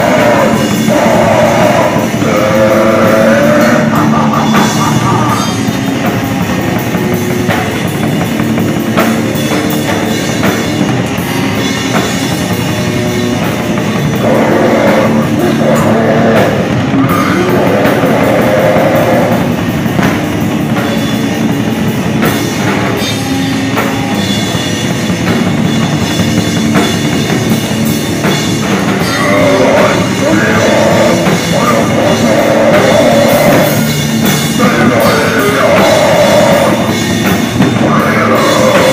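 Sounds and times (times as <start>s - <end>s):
heavy rock band playing: 0.0s - 38.9s.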